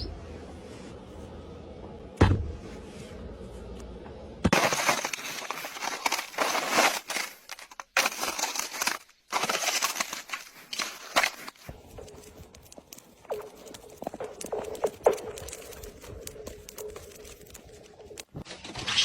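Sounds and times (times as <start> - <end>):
ice crackling and crunching: 4.5 - 19.0.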